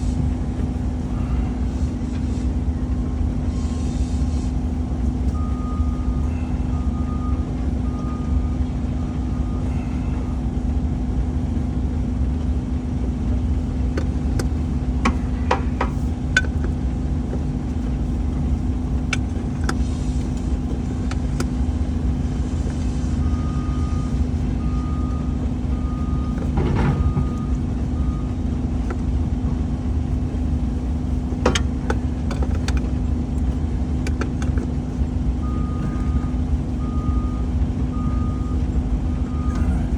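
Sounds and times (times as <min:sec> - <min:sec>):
heavy equipment engine running: 0:00.0 - 0:39.9
reversing alarm beeping: 0:05.3 - 0:10.5, 0:23.2 - 0:28.5, 0:35.4 - 0:39.9.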